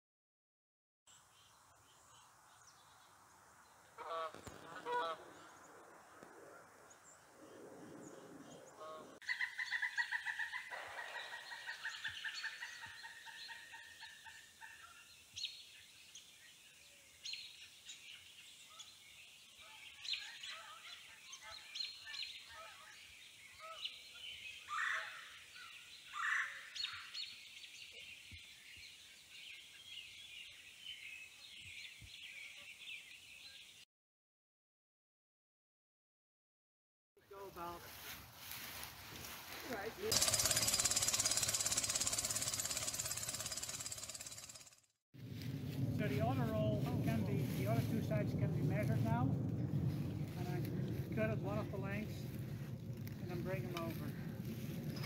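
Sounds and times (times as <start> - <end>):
low honk-like bird calls: 4.0 - 5.5
rapid bird trill: 40.1 - 44.8.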